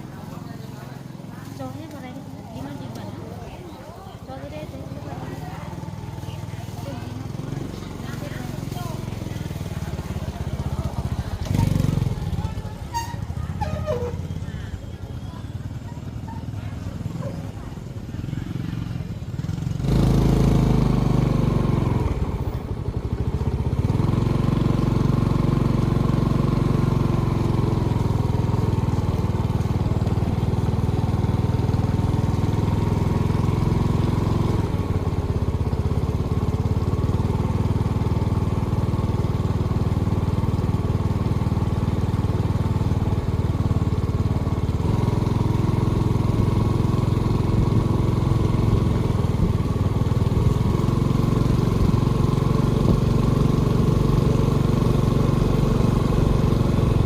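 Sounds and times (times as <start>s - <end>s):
small engine running: 15.4s - 57.0s.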